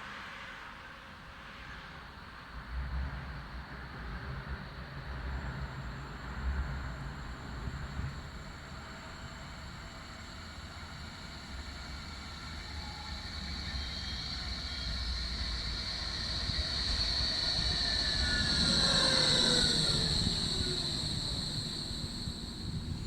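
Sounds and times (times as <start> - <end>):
electric tram passing: 3.8 - 23.0
high whine: 11.6 - 23.0
falling tones: 17.6 - 23.0.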